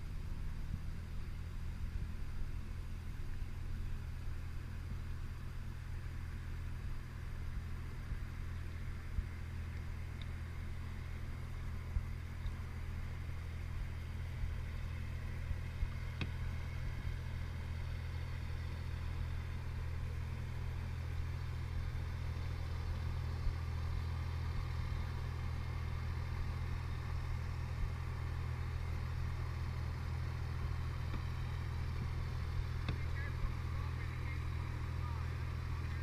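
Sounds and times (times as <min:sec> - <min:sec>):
car exhaust idling: 0:00.0 - 0:36.0.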